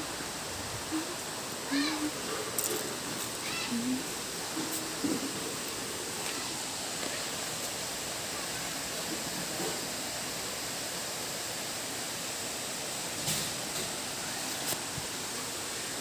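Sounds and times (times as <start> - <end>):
falling water hiss: 0.0 - 16.0.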